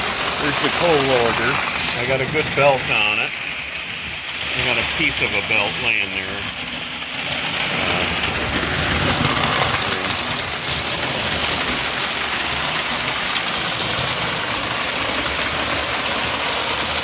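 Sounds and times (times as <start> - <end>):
model train motor whir: 0.0 - 17.0
wheel rumble: 0.0 - 17.0.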